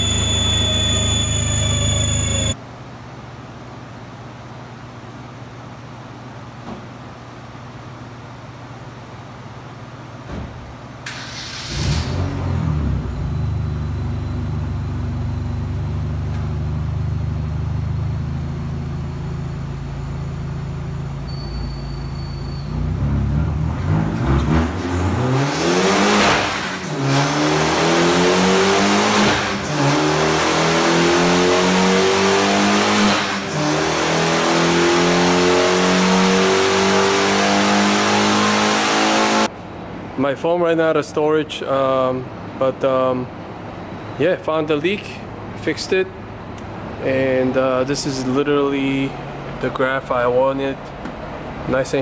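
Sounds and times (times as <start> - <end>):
car engine revving on dyno: 11.1 - 21.0, 22.7 - 39.5.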